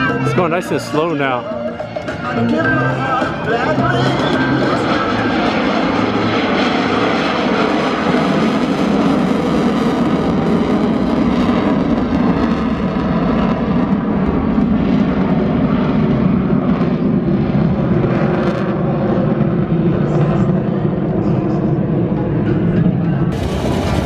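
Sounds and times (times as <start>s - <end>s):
propeller aircraft engine: 0.0s - 24.0s.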